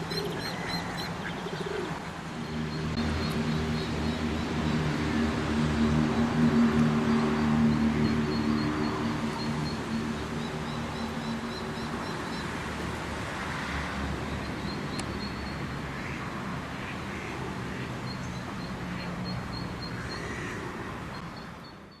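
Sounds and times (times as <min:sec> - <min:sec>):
birds chirping: 0:00.0 - 0:05.0.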